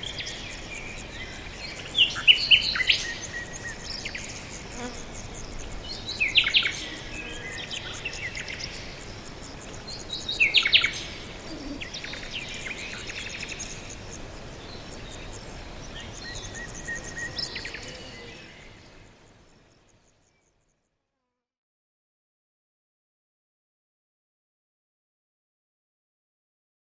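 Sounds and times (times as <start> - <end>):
birds chirping and trilling: 0.0 - 20.7
soft steady background noise: 0.0 - 21.0.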